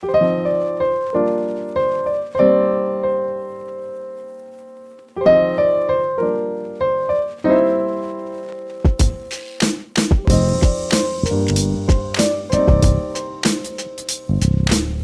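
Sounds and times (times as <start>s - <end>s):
piano-like keyboard chords: 0.0s - 15.0s.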